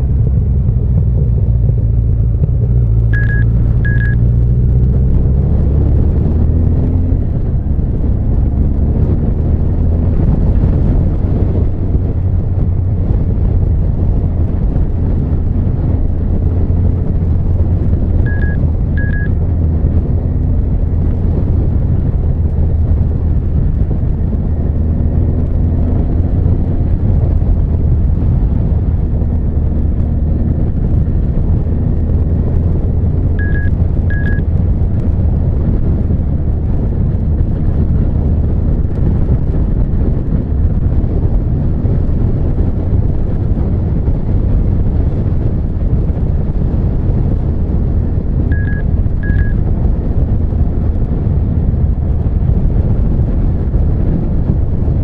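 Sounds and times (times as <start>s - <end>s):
motorcycle engine running: 0.0s - 55.0s
short high double beep: 3.2s - 4.2s, 18.3s - 19.3s, 33.4s - 34.4s, 48.5s - 49.6s.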